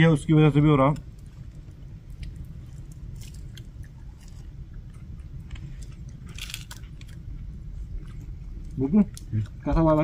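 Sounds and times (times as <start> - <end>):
crunch of crisp food: 0.9 - 7.4
person chewing food: 1.0 - 9.7.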